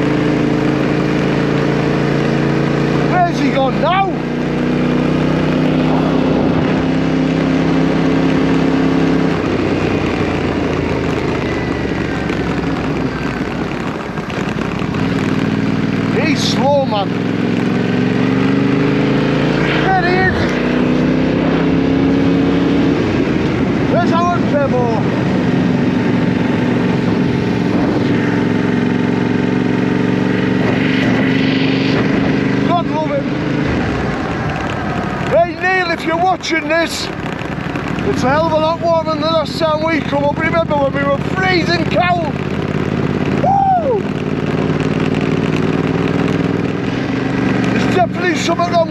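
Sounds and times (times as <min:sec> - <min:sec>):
motorcycle engine running: 0:00.0 - 0:48.9
rough rushing sound: 0:24.6 - 0:38.6.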